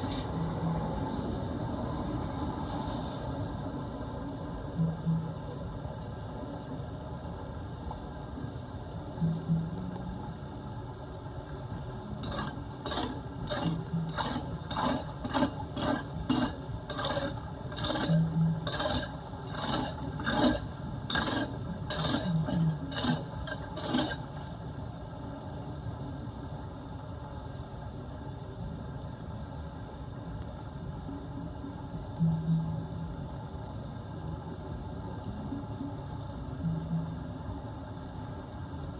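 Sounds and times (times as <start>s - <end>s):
scraping strokes on drain: 12.2s - 24.6s.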